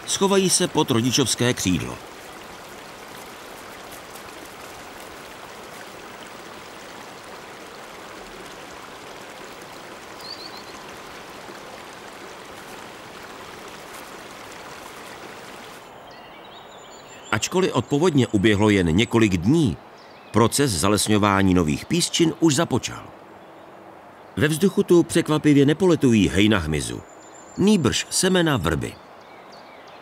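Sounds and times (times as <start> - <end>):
river rushing over stones: 0.0 - 16.0.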